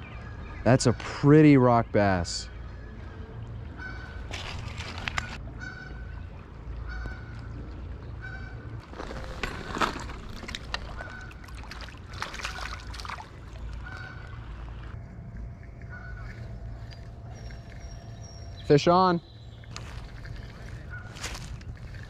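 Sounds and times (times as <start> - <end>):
bird calling: 3.7 - 6.2, 10.7 - 14.8, 15.8 - 22.0
low rumble: 13.0 - 22.0.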